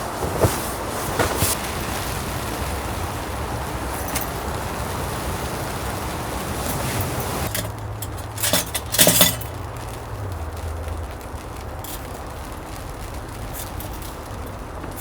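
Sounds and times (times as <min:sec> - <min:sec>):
hard objects clinking: 0:06.7 - 0:10.6, 0:13.4 - 0:15.0.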